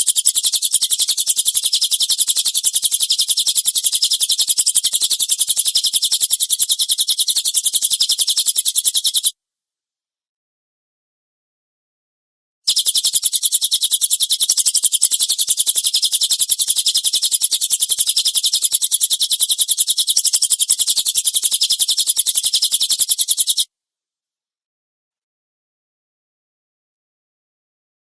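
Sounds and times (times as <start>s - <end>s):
bird rapid high-pitched chirps: 0.0s - 9.3s, 12.7s - 23.7s.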